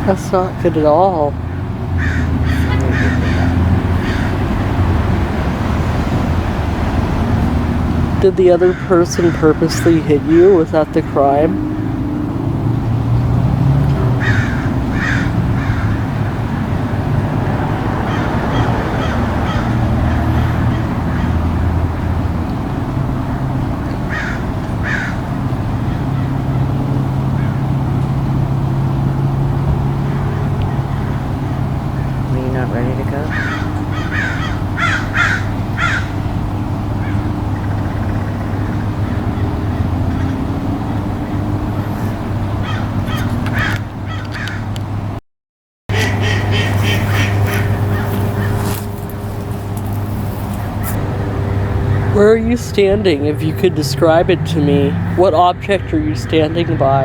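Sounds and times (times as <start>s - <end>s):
bird cawing: 1.4s - 5.1s, 8.6s - 10.7s, 13.7s - 16.8s, 17.8s - 22.3s, 23.3s - 27.8s, 30.1s - 32.3s, 33.2s - 44.8s, 45.9s - 52.2s
low hum and rumble: 45.9s - 55.3s.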